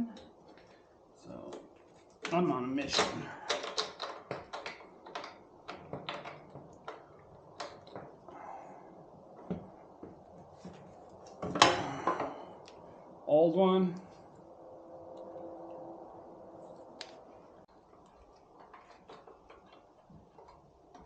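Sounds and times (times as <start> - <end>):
hand tools clicking and knocking: 2.2 - 8.4.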